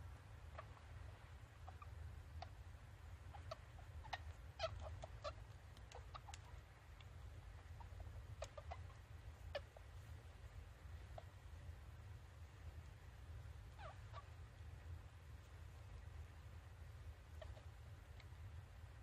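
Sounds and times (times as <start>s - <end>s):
low steady hum: 0.0s - 19.0s
baby rabbits squeaking: 0.3s - 11.7s, 13.6s - 14.6s, 17.1s - 18.4s.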